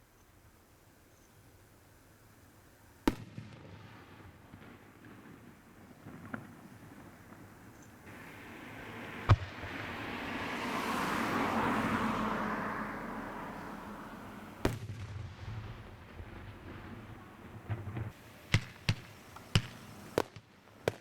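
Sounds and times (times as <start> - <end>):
long fireworks hiss: 0.0 - 11.0, 13.0 - 21.0
fireworks bangs: 3.0 - 10.2, 14.6 - 21.0.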